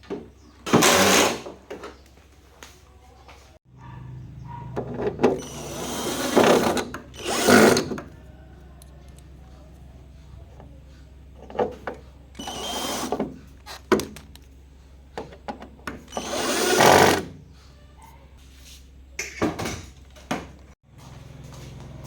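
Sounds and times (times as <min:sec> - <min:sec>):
small power tool running: 0:05.4 - 0:08.1, 0:12.4 - 0:13.3, 0:16.1 - 0:17.3.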